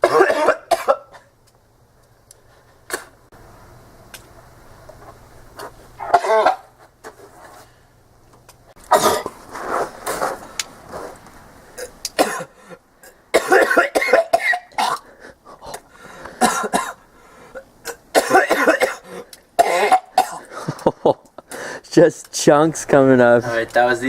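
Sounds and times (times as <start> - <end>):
man retching and coughing: 0.0 - 1.3, 6.0 - 6.7, 8.8 - 9.4, 11.8 - 15.1, 16.4 - 17.0, 17.6 - 20.9.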